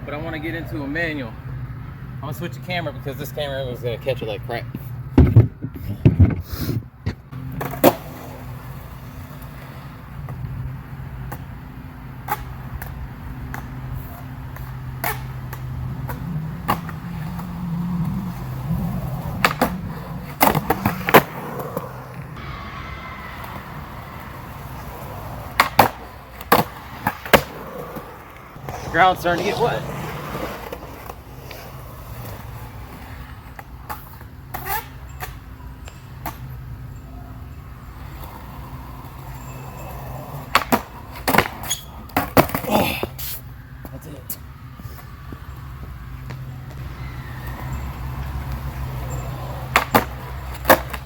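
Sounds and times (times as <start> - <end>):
skateboard wheels rolling: 2.4 - 51.0
skateboard clacking on ground: 4.7 - 10.5, 12.2 - 36.6, 37.9 - 43.2, 46.2 - 51.0.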